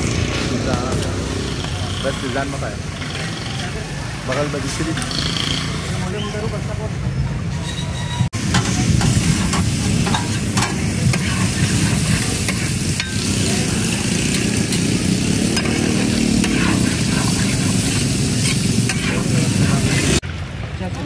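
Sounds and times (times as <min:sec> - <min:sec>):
metal spatulas scraping a pan: 0:07.5 - 0:20.2
liver sizzling in hot oil: 0:08.4 - 0:20.2.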